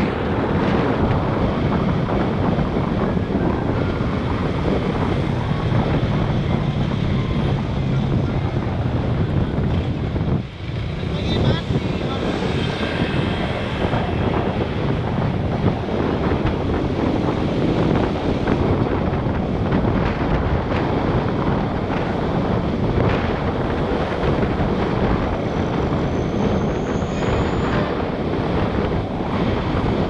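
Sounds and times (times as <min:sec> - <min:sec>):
motorbike engine: 0:00.0 - 0:19.6
traffic noise: 0:00.0 - 0:30.0
wind buffeting microphone: 0:00.0 - 0:30.0.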